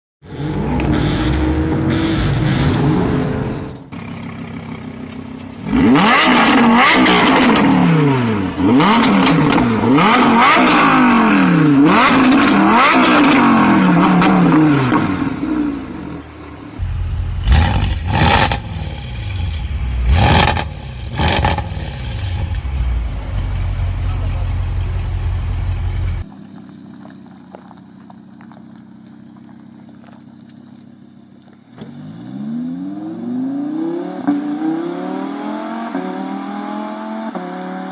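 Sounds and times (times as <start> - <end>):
car engine accelerating hard: 0.2 - 4.1, 5.6 - 16.2, 16.8 - 26.3, 31.7 - 37.9
engine revving: 0.2 - 4.7, 5.6 - 16.2, 16.8 - 26.3, 31.7 - 37.9
low engine rumble: 14.1 - 31.8
sharp exhaust bangs: 16.8 - 26.2.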